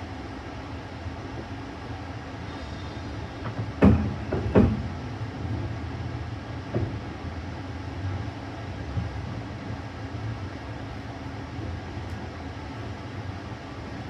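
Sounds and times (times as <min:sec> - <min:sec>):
passenger train rumbling: 0:00.0 - 0:14.0
loud sharp knocks: 0:03.4 - 0:05.0.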